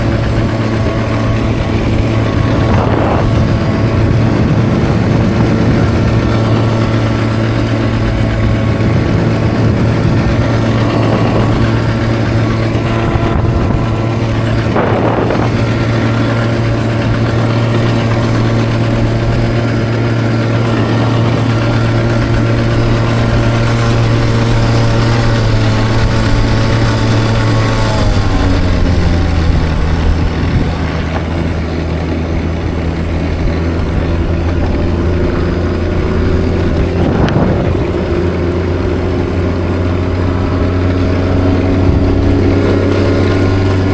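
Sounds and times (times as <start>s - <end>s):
dirt bike engine running: 0.0s - 43.9s.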